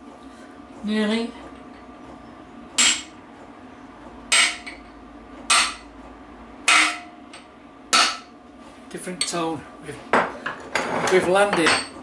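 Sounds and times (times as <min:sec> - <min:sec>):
hammer striking metal drift: 0:04.3 - 0:04.8, 0:05.5 - 0:05.9, 0:06.6 - 0:07.3, 0:07.9 - 0:08.3.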